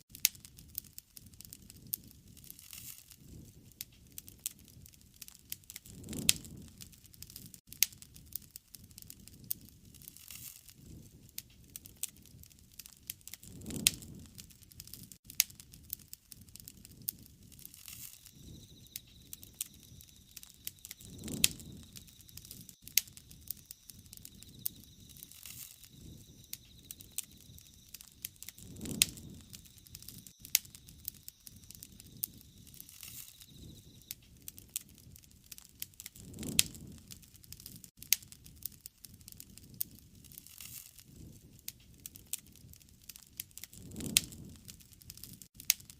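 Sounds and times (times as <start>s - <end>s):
wood fire crackling and popping: 0.1s - 45.9s
low rushing swell: 18.2s - 34.1s.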